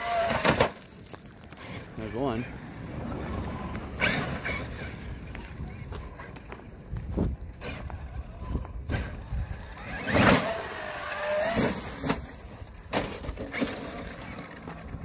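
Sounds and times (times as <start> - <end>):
electric motor whining: 7.5 - 12.2
toy truck knocking and thudding: 11.2 - 15.0.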